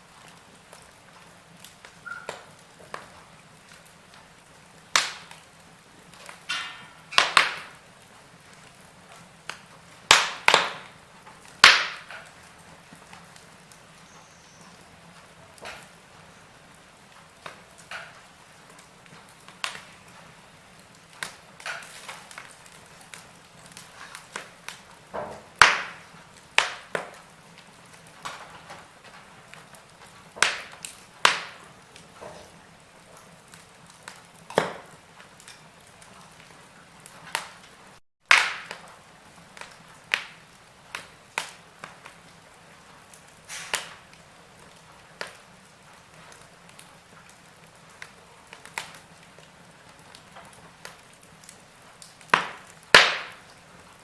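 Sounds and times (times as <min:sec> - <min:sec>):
faint steady hiss: 0:00.0 - 0:38.0
wood fire crackling: 0:00.0 - 0:54.0.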